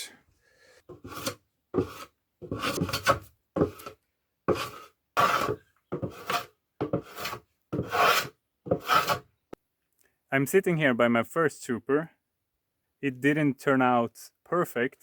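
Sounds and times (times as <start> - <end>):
hand plane rasping on wood: 0.9 - 9.2.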